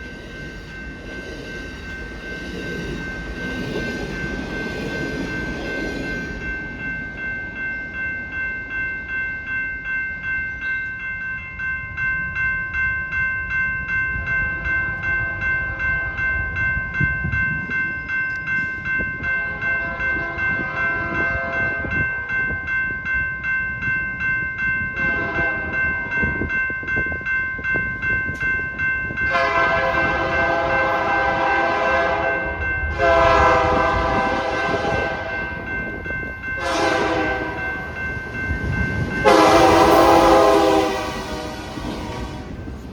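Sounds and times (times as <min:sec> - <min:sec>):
crossing bell ringing: 0:00.0 - 0:42.9
train rumble: 0:00.0 - 0:42.9
locomotive air horn blasts: 0:19.8 - 0:21.8, 0:29.3 - 0:35.3, 0:36.6 - 0:37.6, 0:39.2 - 0:42.7.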